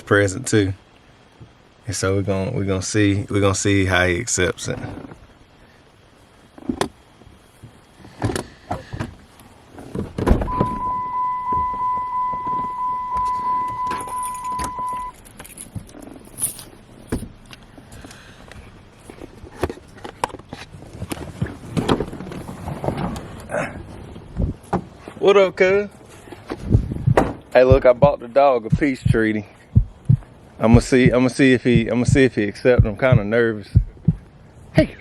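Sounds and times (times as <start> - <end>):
keys and car door handling: 10.2 - 17.6
car electronic warning chime: 10.5 - 15.2.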